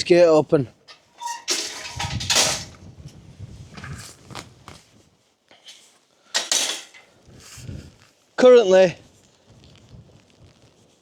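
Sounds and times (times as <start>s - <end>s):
gate latch clattering: 0.9s - 2.8s, 6.4s - 7.1s.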